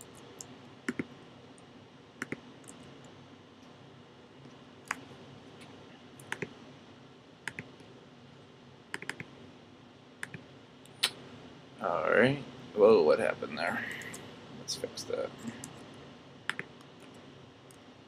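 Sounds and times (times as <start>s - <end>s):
computer mouse clicking: 0.0s - 1.1s, 2.2s - 3.2s, 6.2s - 6.5s, 7.4s - 7.8s, 8.9s - 9.3s, 10.2s - 10.4s, 16.5s - 17.8s.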